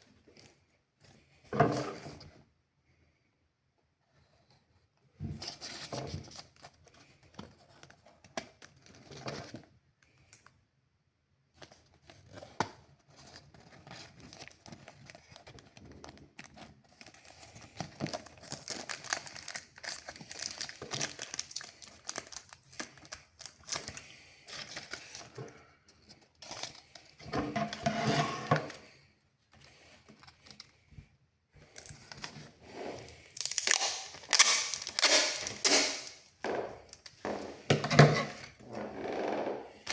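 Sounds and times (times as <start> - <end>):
paper rustling and crinkling: 5.2 - 10.4, 11.5 - 36.1.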